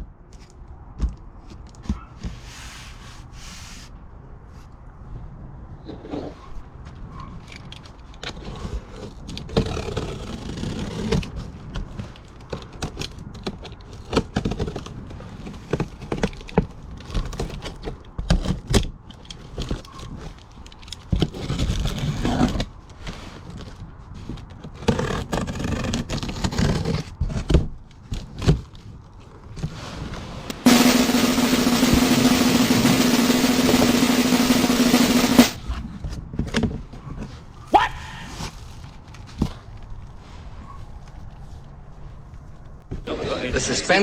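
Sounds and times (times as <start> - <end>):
rummaging scrapes and rattles: 7.4 - 31.0.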